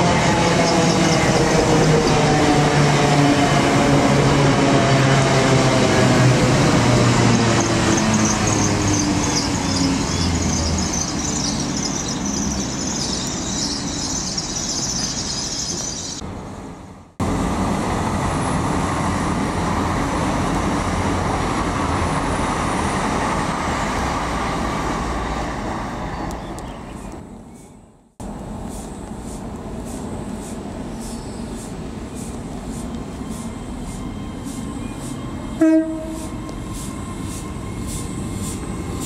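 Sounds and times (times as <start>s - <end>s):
diesel locomotive passing: 0.0s - 39.0s
rumble of passing rail traffic: 0.0s - 39.0s
train passing at speed: 0.0s - 39.0s
high hissing squeal: 7.5s - 16.2s, 28.7s - 39.0s.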